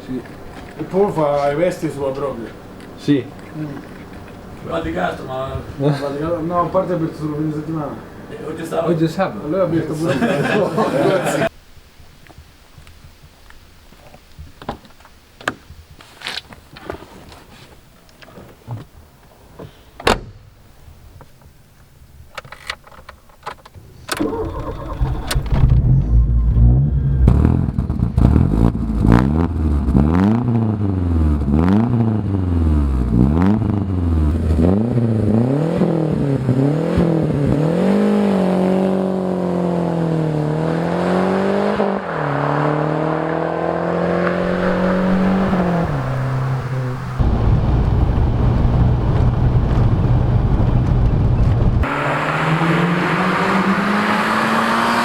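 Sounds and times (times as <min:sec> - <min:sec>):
car engine starting and revving: 0:24.1 - 0:55.0.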